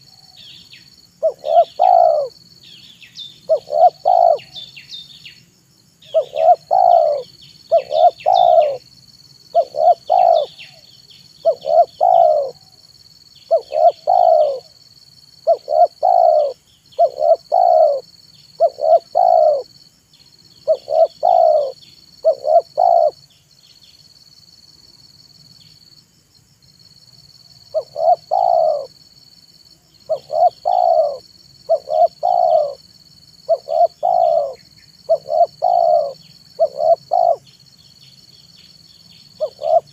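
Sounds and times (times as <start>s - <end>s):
small birds chirping: 0.0s - 24.5s, 26.9s - 39.9s
dove cooing: 1.2s - 2.4s, 3.4s - 4.7s, 6.1s - 8.8s, 9.5s - 10.8s, 11.4s - 12.8s, 13.5s - 14.8s, 15.4s - 19.7s, 20.6s - 23.2s, 27.7s - 29.0s, 30.1s - 32.9s, 33.5s - 37.4s, 39.4s - 39.9s.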